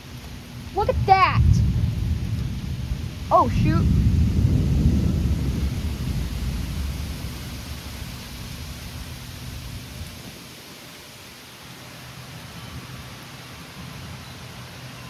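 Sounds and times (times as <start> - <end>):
rain hissing: 0.0 - 15.0
thunder rumbling: 0.6 - 10.5.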